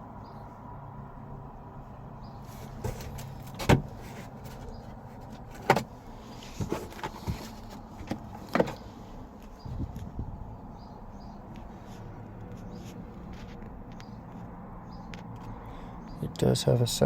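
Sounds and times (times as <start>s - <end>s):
seatbelt clicking and clunking: 2.8s - 8.8s.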